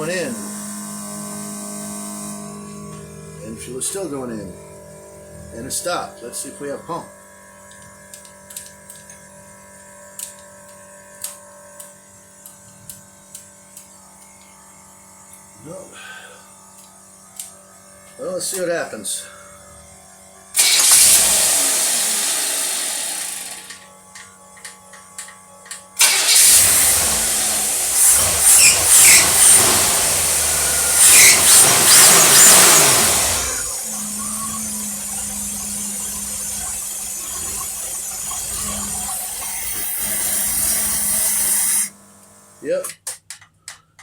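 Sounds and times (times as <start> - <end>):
engine sputtering revving and idling: 0.0 - 6.8, 20.6 - 23.7, 26.0 - 42.0.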